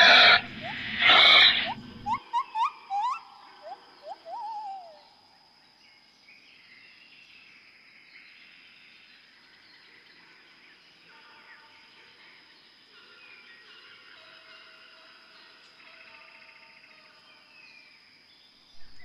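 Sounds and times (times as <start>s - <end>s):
animal call falling in pitch: 0.0s - 2.2s
faint bird chirps: 0.0s - 5.3s, 18.8s - 19.0s.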